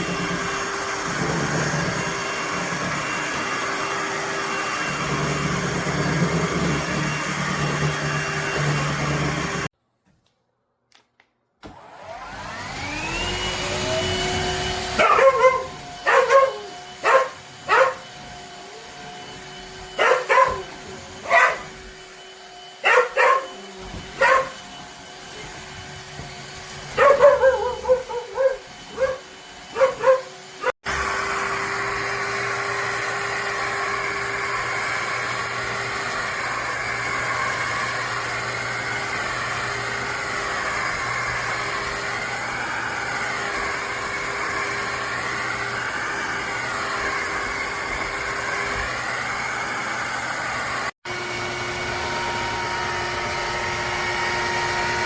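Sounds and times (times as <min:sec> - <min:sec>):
wet-dry vacuum running: 0:00.0 - 0:09.7, 0:11.6 - 0:55.0
dog barking: 0:15.0 - 0:18.0, 0:20.0 - 0:21.8, 0:22.8 - 0:23.6, 0:24.2 - 0:24.6, 0:27.0 - 0:30.7.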